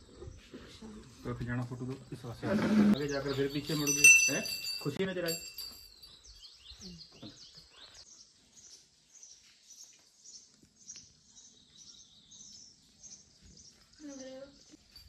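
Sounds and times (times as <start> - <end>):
small bird chirping: 5.8 - 15.0.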